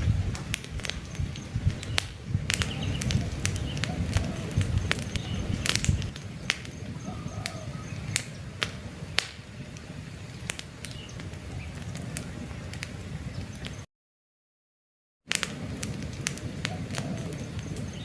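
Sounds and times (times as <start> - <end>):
campfire burning with low rush: 0.0 - 13.9, 15.3 - 18.0
logs crackling and popping: 0.0 - 13.9, 15.3 - 18.0
faint bird chirps: 2.6 - 8.4.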